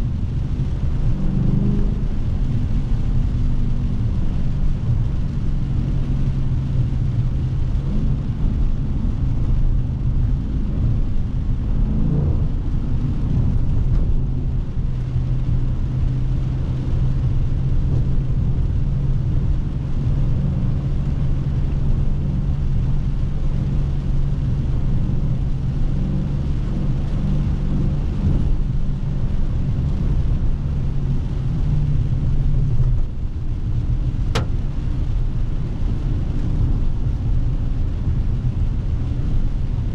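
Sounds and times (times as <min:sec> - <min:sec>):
car exhaust drone: 0:00.0 - 0:39.9
sharp click: 0:34.3 - 0:34.5.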